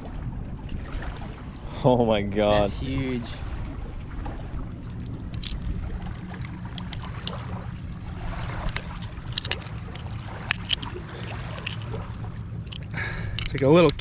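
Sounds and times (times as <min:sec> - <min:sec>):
low wind rumble: 0:00.0 - 0:14.0
knife clicking and scraping shell: 0:05.3 - 0:05.7, 0:08.6 - 0:12.0, 0:12.6 - 0:14.0.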